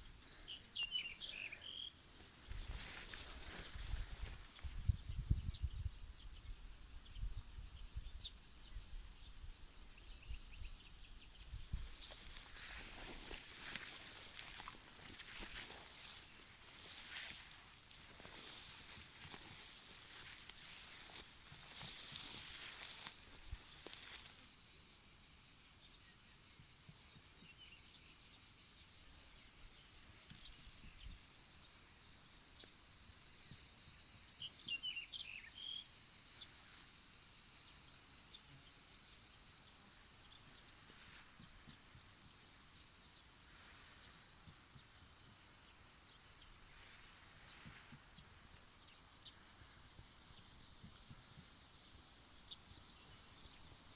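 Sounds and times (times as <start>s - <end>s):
faint bird chirps: 0.0s - 2.6s
insects chirring: 0.0s - 53.9s.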